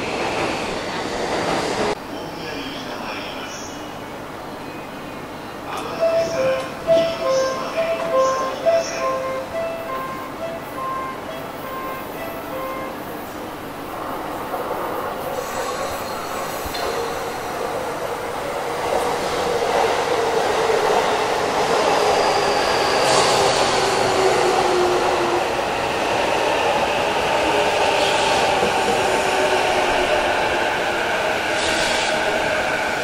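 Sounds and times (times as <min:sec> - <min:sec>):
train wheels squealing: 0:15.3 - 0:17.6, 0:21.8 - 0:24.4.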